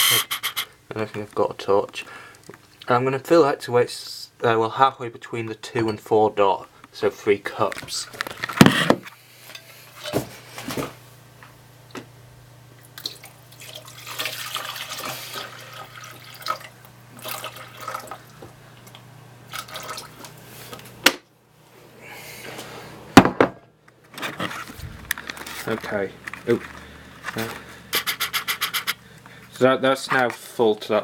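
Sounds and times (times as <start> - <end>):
water pouring from a jug: 13.0 - 20.3.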